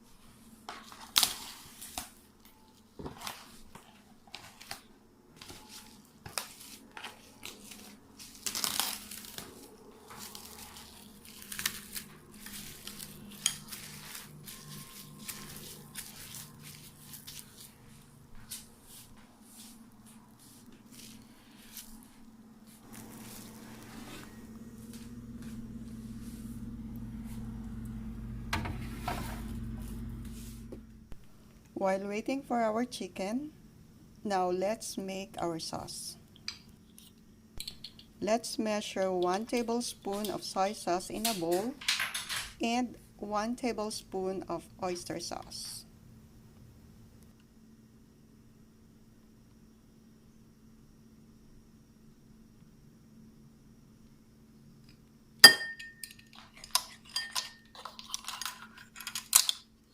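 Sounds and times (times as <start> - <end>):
plastic crinkling and tearing: 6.3 - 17.8, 22.8 - 24.4
low hum: 21.2 - 31.8.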